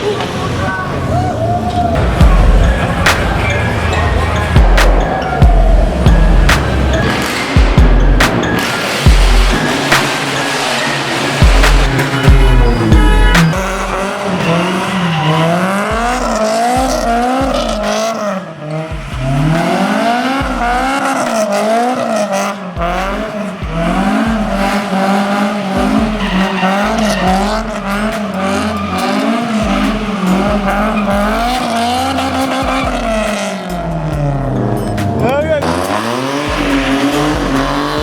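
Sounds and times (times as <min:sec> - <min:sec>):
car engine revving: 0:00.0 - 0:38.0
tyres squealing: 0:00.0 - 0:38.0.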